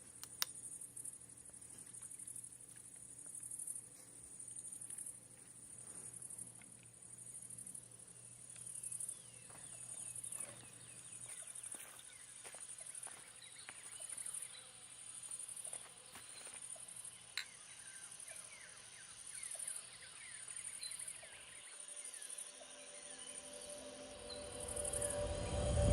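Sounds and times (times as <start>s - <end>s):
insect chorus: 0.0s - 25.9s
bird chirps: 15.6s - 25.9s.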